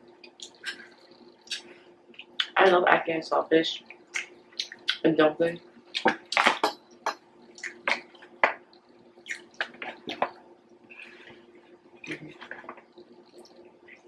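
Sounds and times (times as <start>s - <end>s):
wet chewing and lip smacks: 0.2s - 2.6s, 4.1s - 5.0s, 5.9s - 10.8s.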